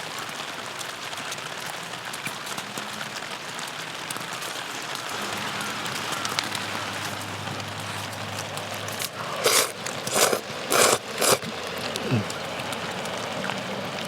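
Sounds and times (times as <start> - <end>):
rain hiss: 0.0 - 14.0
loud short crunching sounds: 8.9 - 12.1.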